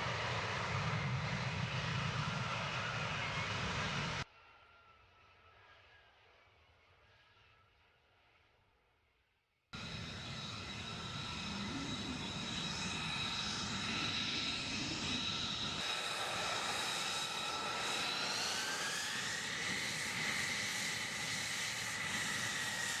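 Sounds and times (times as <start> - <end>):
jet engine whining: 0.0 - 4.2, 9.8 - 23.0.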